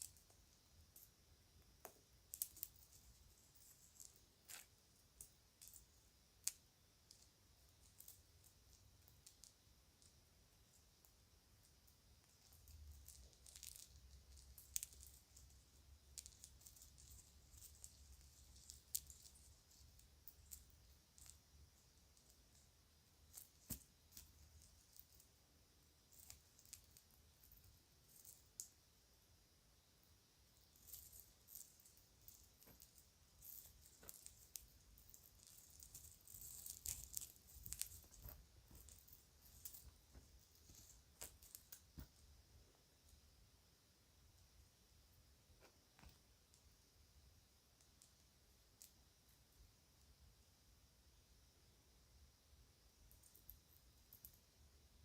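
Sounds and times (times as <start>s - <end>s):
plastic jewelry clicking and rattling: 1.8s - 11.2s, 11.8s - 25.4s, 26.0s - 28.8s, 30.6s - 42.2s.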